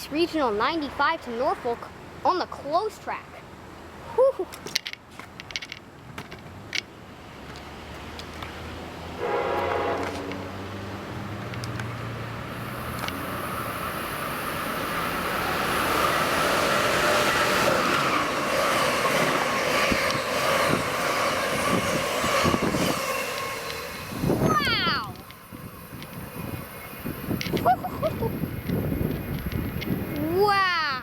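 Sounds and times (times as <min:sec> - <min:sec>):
wheels clicking over rail joints: 0:04.5 - 0:08.9, 0:09.6 - 0:10.5, 0:11.1 - 0:30.7
train passing: 0:07.4 - 0:31.0
train horn blast: 0:09.2 - 0:10.4.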